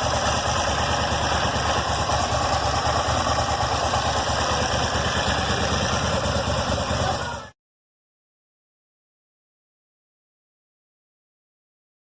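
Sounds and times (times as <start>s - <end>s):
motorcycle engine idling: 0.0s - 7.6s.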